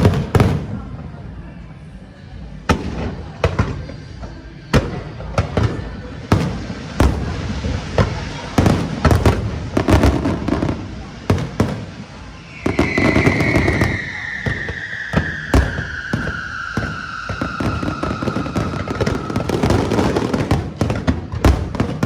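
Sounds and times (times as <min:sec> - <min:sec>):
fireworks bangs: 0:00.0 - 0:01.1, 0:02.7 - 0:22.0
long falling whistle: 0:11.4 - 0:20.9.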